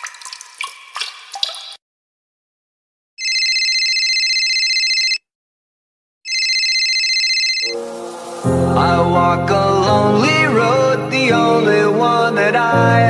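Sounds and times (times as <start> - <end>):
telephone ringing: 3.2 - 5.2, 6.3 - 7.8.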